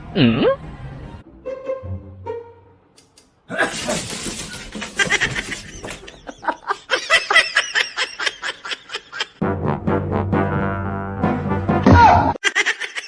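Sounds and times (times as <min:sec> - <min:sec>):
person laughing hard: 0:04.8 - 0:09.4, 0:12.4 - 0:13.0.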